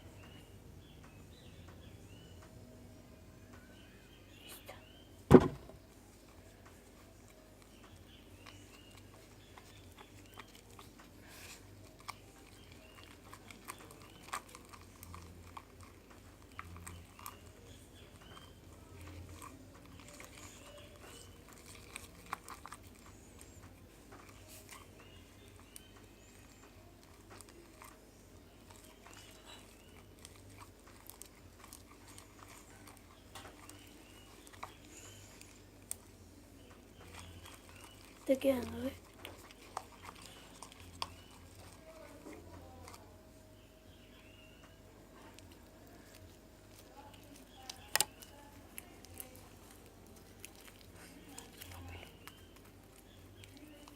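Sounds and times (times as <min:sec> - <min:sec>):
slime squelching: 0:06.4 - 0:53.9.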